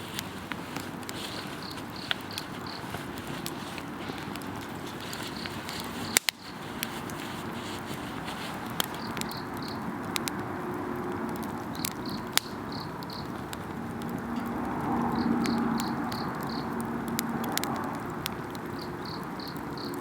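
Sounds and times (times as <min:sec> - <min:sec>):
insects chirping: 0:00.0 - 0:09.7, 0:12.0 - 0:13.3
campfire crackling: 0:00.0 - 0:20.0.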